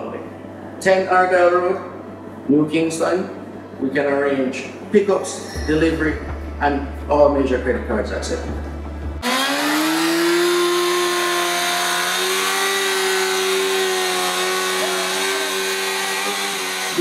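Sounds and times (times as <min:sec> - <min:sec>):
engine revving high: 0:09.1 - 0:17.0.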